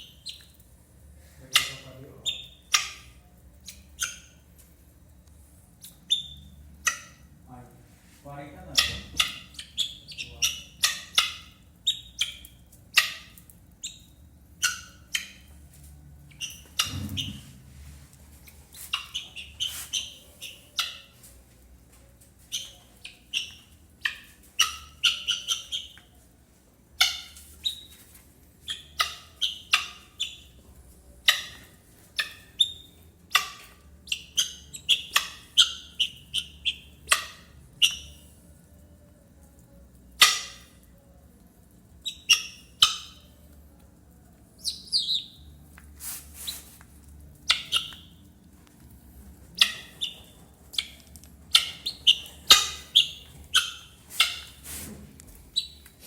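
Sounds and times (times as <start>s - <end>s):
guinea fowl chirps and squawks: 0.0s - 0.5s, 1.5s - 4.4s, 5.8s - 7.3s, 8.7s - 15.4s, 16.3s - 17.5s, 18.9s - 21.2s, 22.5s - 26.1s, 27.0s - 28.0s, 28.6s - 30.6s, 31.2s - 38.2s, 40.2s - 40.8s, 42.0s - 43.3s, 44.6s - 45.5s, 47.4s - 48.2s, 49.5s - 54.7s, 55.5s - 55.9s.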